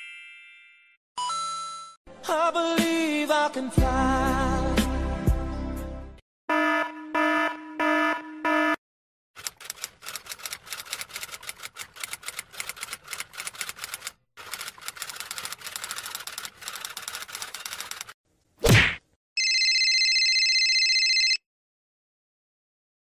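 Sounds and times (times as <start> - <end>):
typewriter-like clicking: 9.4 - 18.2.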